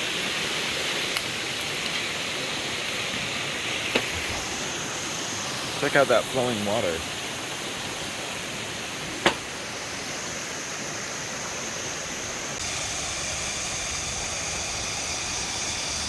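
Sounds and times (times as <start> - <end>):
stream rushing: 0.0 - 14.6.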